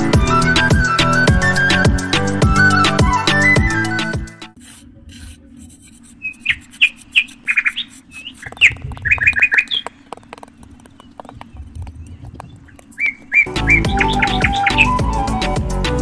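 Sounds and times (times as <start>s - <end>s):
low steady hum: 4.6s - 15.2s
small birds chirping: 6.1s - 15.4s.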